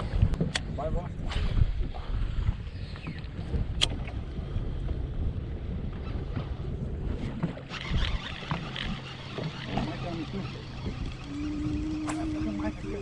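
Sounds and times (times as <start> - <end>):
water lapping against kayak: 0.0 - 13.0
wind rumbling on microphone: 0.0 - 13.0.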